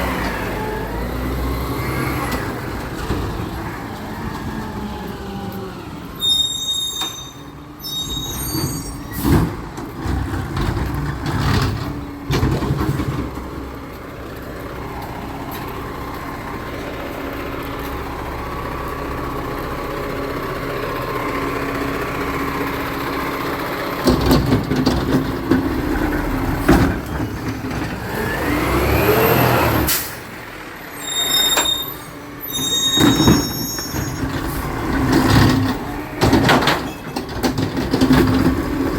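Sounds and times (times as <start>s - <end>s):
truck engine running: 9.2s - 38.9s.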